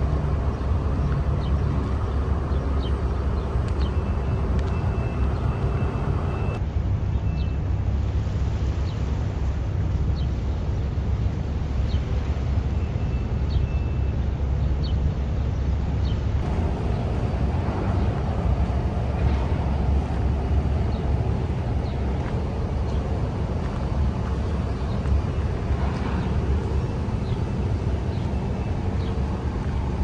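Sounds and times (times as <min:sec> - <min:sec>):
city low rumble: 0:00.0 - 0:30.0.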